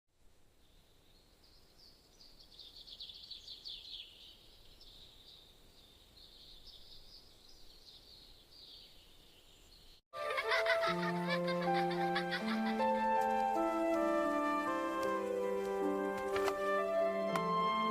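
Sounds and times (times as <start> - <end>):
music with held chords: 10.2 - 17.9.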